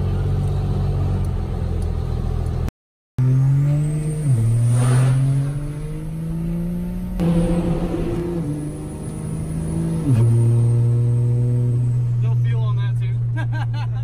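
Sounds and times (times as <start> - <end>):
engine revving up: 3.2 - 12.2.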